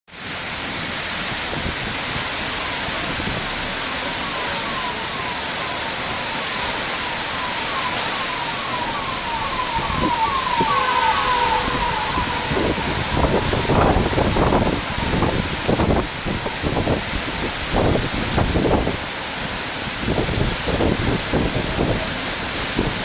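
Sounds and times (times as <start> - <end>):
heavy rain: 0.1 - 23.0
wind: 0.1 - 23.0
siren wailing: 1.5 - 23.0.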